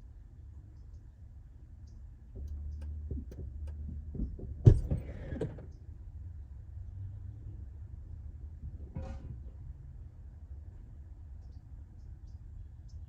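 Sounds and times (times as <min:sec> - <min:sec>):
tools clicking and knocking: 0:02.4 - 0:05.5.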